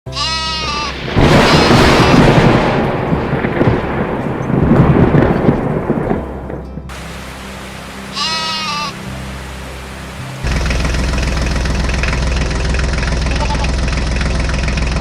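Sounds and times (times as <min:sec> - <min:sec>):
goat bleating: 0:00.1 - 0:01.8, 0:08.1 - 0:09.0, 0:13.2 - 0:13.8
loud long rumbling: 0:01.0 - 0:08.2, 0:08.9 - 0:15.0
low background music: 0:02.4 - 0:14.8.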